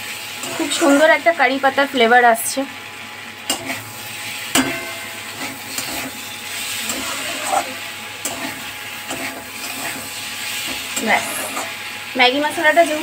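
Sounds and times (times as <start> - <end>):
vegetables sizzling in a pan: 0.0 - 13.0
spatula scraping and knocking pan: 3.5 - 3.9, 4.5 - 11.8.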